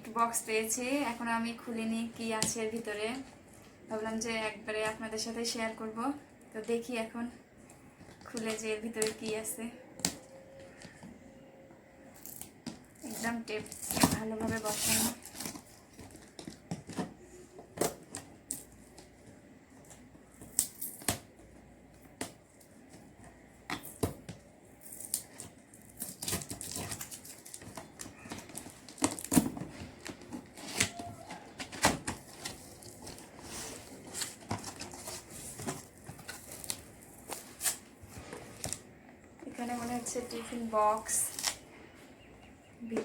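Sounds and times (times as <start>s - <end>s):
packing tape tearing: 12.2s - 17.0s, 24.8s - 33.3s
box and contents rustling: 12.2s - 41.7s.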